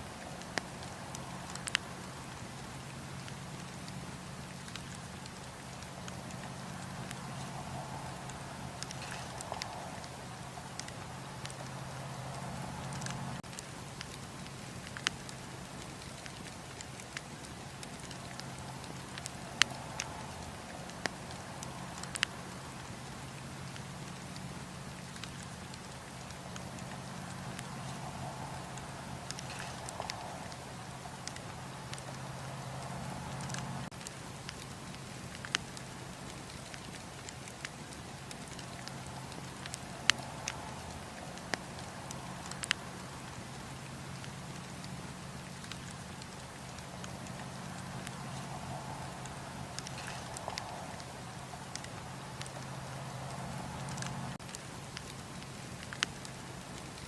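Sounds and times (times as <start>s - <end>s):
steady low rumble: 0.0s - 34.0s
campfire hissing: 0.0s - 57.0s
fire crackles and pops: 0.0s - 57.0s.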